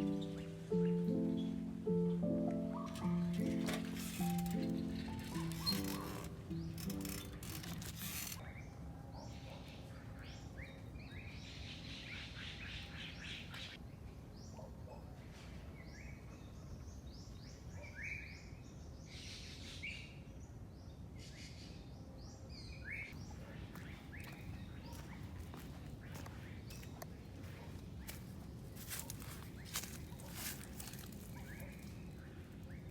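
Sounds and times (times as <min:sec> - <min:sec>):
bird trill: 0:00.0 - 0:08.7
wild birds chirping: 0:00.0 - 0:15.1, 0:15.8 - 0:32.9.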